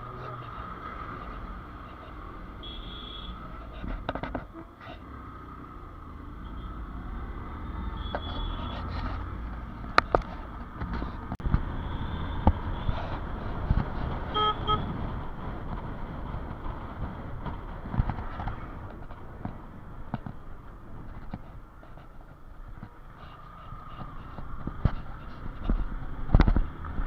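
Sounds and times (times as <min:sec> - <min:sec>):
road traffic noise: 0:00.0 - 0:27.0
vehicle horn toots: 0:02.6 - 0:03.4, 0:08.0 - 0:08.7, 0:14.3 - 0:14.9.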